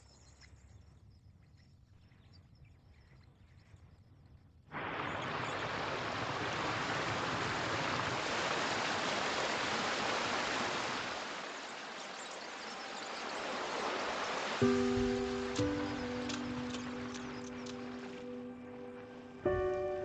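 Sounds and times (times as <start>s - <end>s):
rushing stream water: 4.8s - 20.0s.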